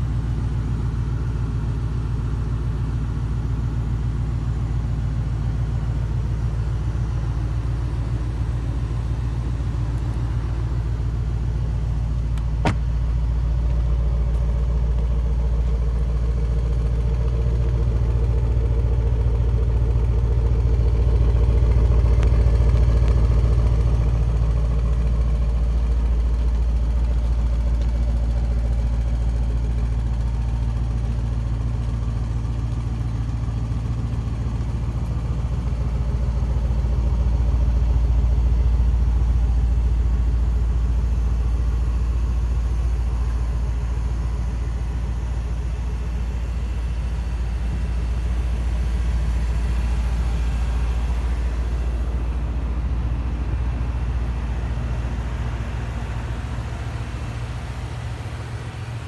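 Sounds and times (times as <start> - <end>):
car engine idling: 0.0 - 59.0
sharp knock: 12.6 - 12.9.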